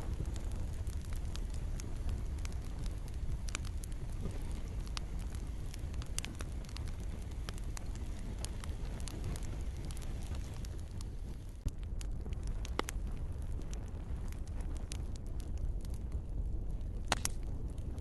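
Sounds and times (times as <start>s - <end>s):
light rain falling: 0.0s - 11.6s
campfire crackling and popping: 0.0s - 18.0s.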